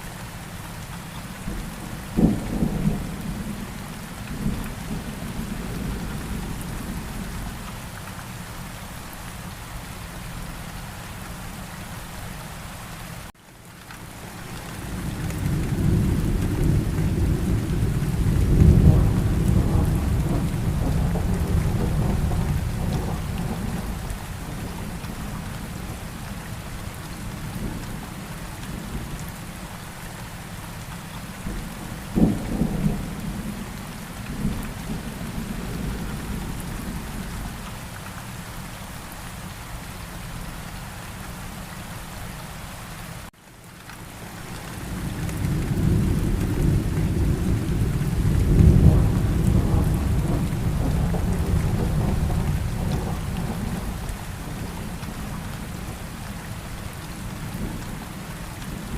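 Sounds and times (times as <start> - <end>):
steady rain: 0.0 - 58.9
thunder rumbling: 14.9 - 26.2, 31.4 - 37.6, 44.7 - 58.9
sharp thunderclap: 45.3 - 54.0.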